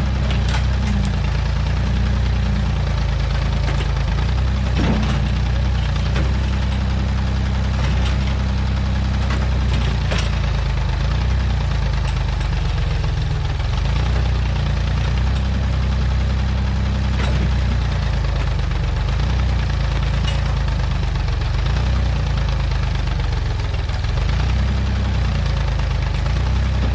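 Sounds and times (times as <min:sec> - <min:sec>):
backhoe engine running: 0:00.0 - 0:26.9.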